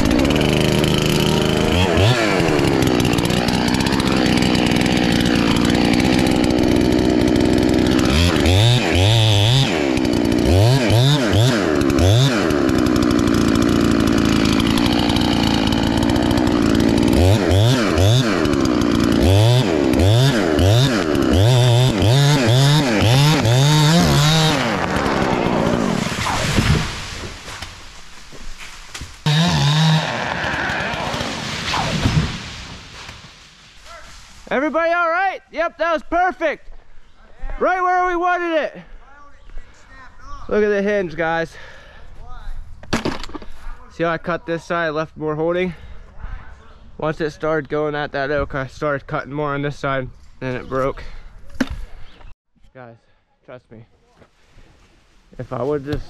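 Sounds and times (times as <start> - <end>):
chainsaw revving while cutting wood: 0.0 - 26.4, 29.2 - 32.2.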